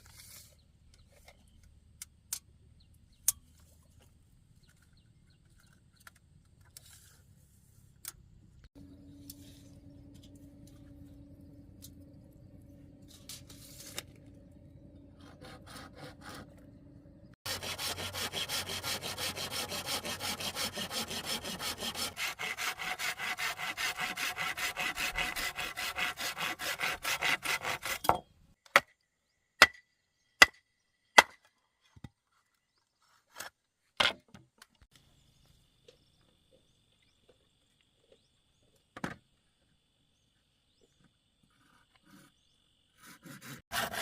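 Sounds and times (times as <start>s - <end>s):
hand saw cutting wood: 15.2s - 16.6s, 17.4s - 28.2s, 43.0s - 44.0s.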